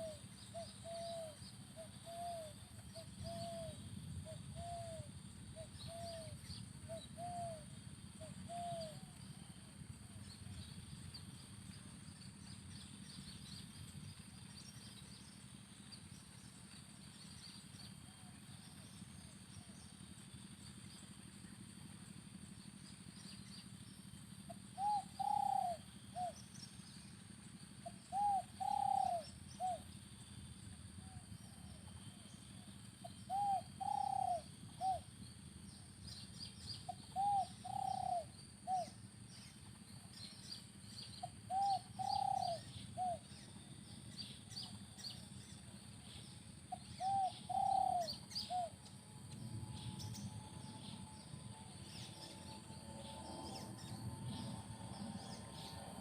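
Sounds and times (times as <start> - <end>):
dove cooing: 0.0 - 9.5, 24.5 - 26.4, 27.8 - 29.8, 33.0 - 35.1, 36.9 - 39.0, 41.2 - 43.2, 46.7 - 48.8
small birds chirping: 22.6 - 30.0, 31.5 - 52.8.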